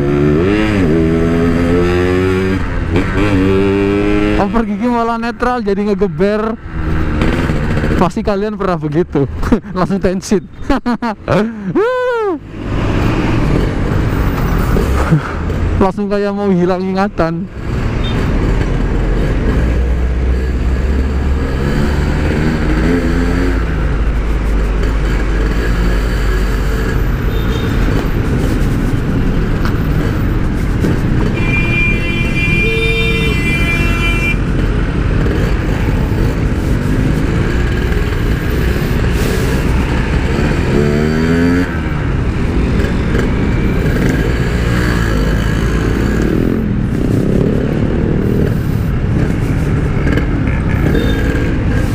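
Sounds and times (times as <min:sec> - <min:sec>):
motorcycle engine revving: 0:00.0 - 0:08.4, 0:17.5 - 0:51.9
vehicle horn: 0:31.3 - 0:34.5, 0:50.9 - 0:51.4.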